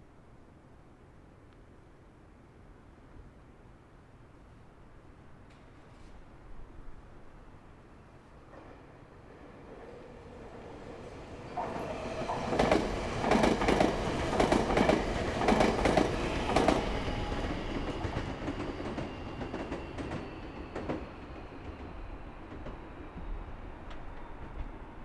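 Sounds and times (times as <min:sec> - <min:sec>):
train wheels clacking over rail joints: 0:11.4 - 0:21.0.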